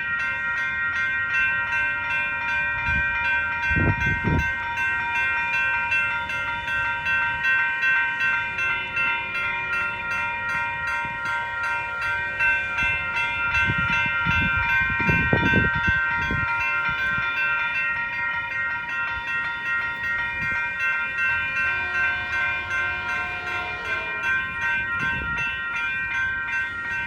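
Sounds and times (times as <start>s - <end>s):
railroad crossing bell ringing: 0.0s - 27.0s.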